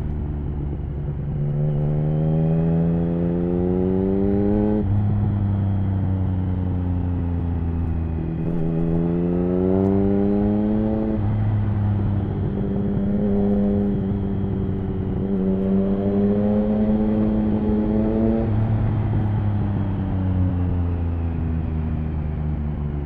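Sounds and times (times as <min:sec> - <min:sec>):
motorcycle engine revving: 0:01.2 - 0:05.8, 0:08.4 - 0:19.9.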